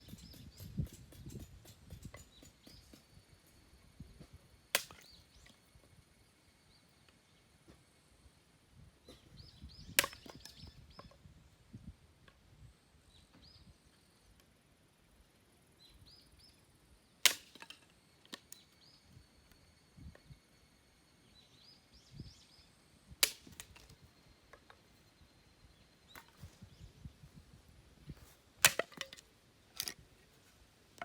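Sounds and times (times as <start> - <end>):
blade cracking into firewood: 4.8 - 5.5, 10.0 - 10.7, 17.2 - 18.6, 23.2 - 24.0, 28.6 - 30.0.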